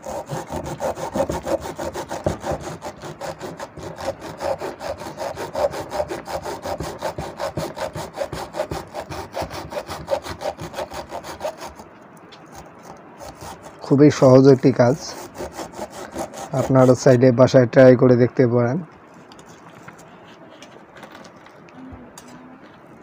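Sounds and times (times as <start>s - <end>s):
hacksaw sawing through copper: 0.0s - 17.2s.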